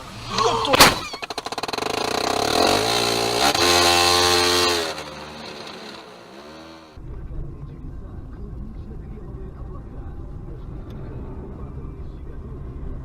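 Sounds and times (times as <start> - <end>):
vehicle engine revving: 1.3 - 7.0.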